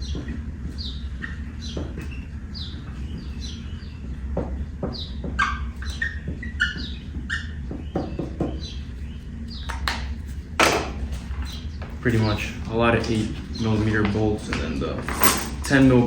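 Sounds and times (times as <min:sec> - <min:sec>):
bird chirping: 0:00.0 - 0:10.2.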